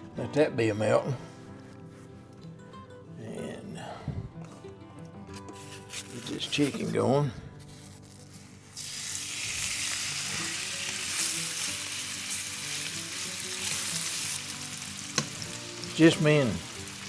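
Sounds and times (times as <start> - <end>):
chicken sizzling in frying pan: 8.7 - 17.0.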